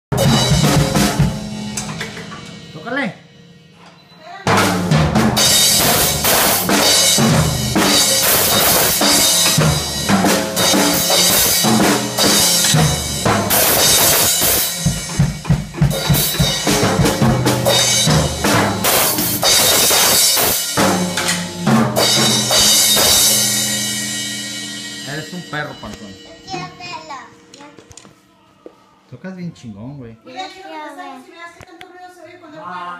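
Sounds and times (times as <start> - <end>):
drum kit played hard: 0.1 - 3.8, 4.4 - 27.0.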